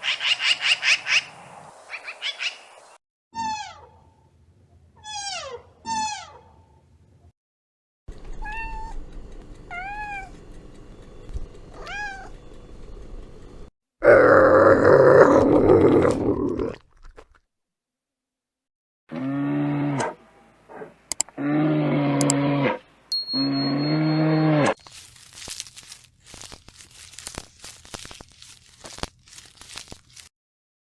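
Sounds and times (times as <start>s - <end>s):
cat meowing: 8.4s - 9.0s, 11.8s - 12.3s
cow mooing: 23.4s - 24.8s.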